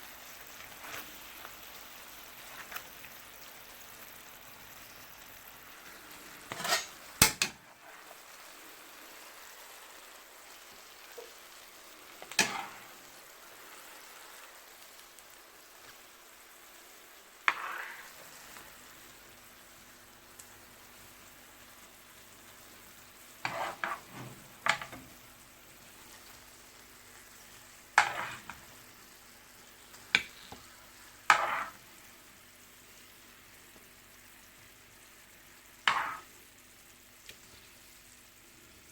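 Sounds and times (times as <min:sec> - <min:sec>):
chicken sizzling in a pan: 0:00.0 - 0:38.9
utensil scraping and knocking pan: 0:06.5 - 0:07.6, 0:17.5 - 0:18.1, 0:23.4 - 0:25.0, 0:28.0 - 0:28.6, 0:31.3 - 0:31.8, 0:35.9 - 0:36.2.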